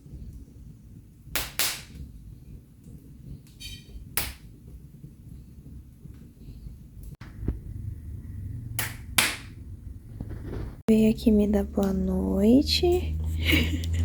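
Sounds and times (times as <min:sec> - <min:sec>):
sharp fire pops: 0:00.0 - 0:10.9
wood fire crackling: 0:00.0 - 0:14.0
low steady rumble: 0:02.0 - 0:14.0.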